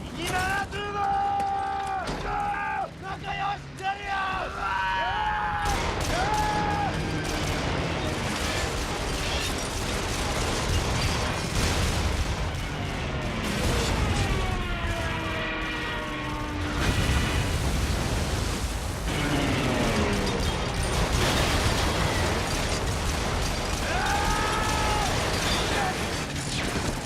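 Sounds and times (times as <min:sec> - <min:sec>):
anti-aircraft gunfire and explosions: 0:00.0 - 0:27.0.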